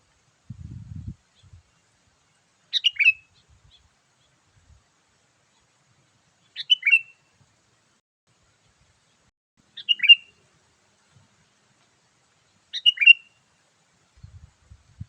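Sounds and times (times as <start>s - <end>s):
bird calls: 2.7s - 4.4s, 6.4s - 7.3s, 9.0s - 10.4s, 12.5s - 13.4s.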